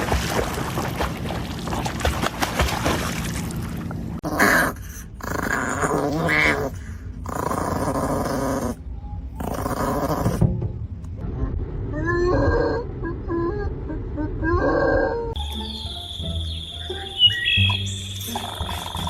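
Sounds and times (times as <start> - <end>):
dog growling and grunting: 4.2 - 10.5.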